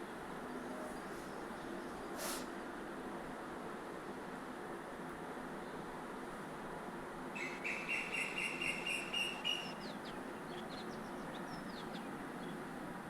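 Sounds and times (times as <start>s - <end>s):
bird singing: 7.6s - 12.6s.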